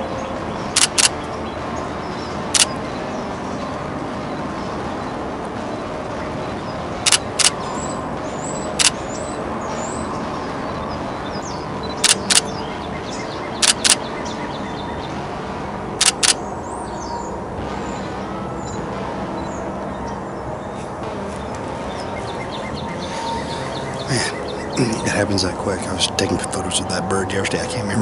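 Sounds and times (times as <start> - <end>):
small birds chirping faintly: 0.0 - 28.0
camera shutter clicks: 0.8 - 1.1, 7.1 - 7.6, 13.6 - 14.0, 16.0 - 16.4.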